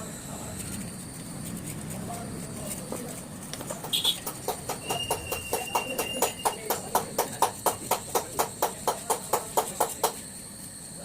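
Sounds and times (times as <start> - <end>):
rapid sharp knocks: 3.8 - 10.2.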